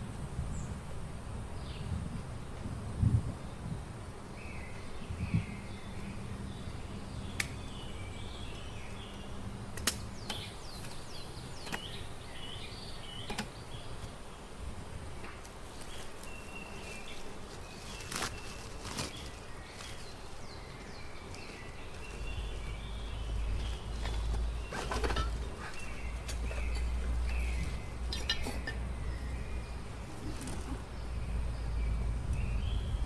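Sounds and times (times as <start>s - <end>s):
birds chirping: 3.4s - 33.0s
sharp single clicks: 7.4s - 7.6s, 9.7s - 11.0s.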